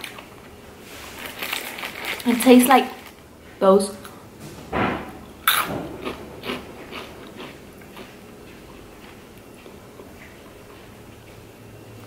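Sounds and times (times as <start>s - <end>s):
person chewing crunchy snack: 5.4s - 10.9s.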